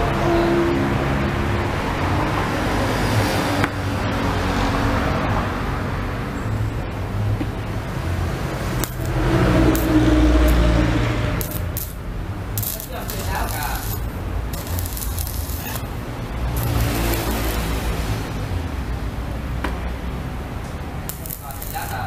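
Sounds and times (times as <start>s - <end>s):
welding arc crackling hiss: 8.6s - 10.6s, 11.4s - 18.4s, 21.0s - 22.0s.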